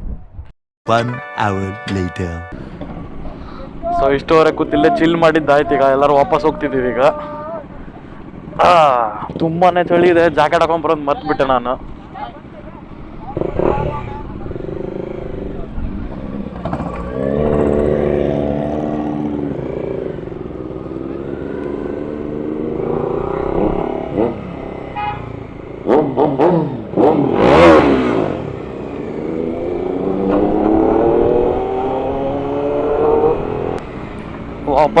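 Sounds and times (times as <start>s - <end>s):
motorcycle engines accelerating: 2.8s - 35.0s
motorcycle revving hard: 13.3s - 34.6s.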